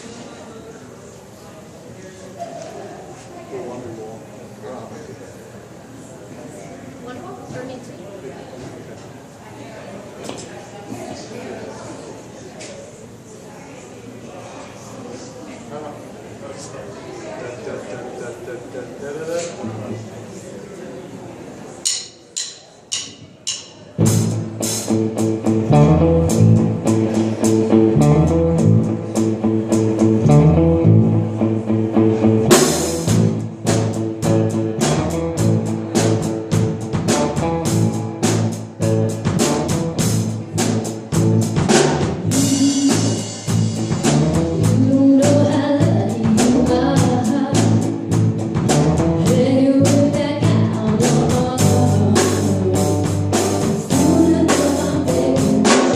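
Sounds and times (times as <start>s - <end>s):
live rock band playing: 24.0s - 55.9s.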